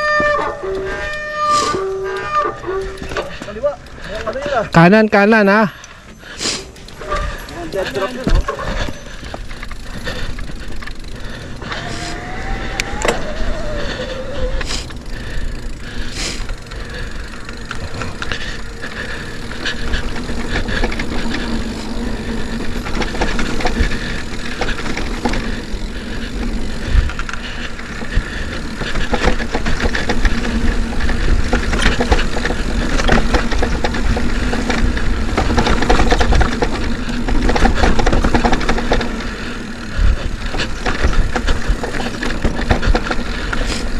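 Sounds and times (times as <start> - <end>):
bike rattling over rough trail: 0.0 - 43.9
low rumble: 9.2 - 21.2.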